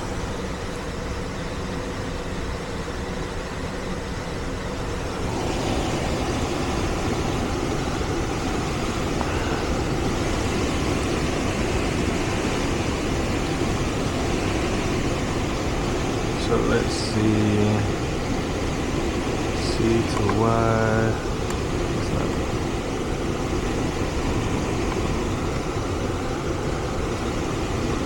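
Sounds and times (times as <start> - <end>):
air conditioning humming: 0.0 - 28.0.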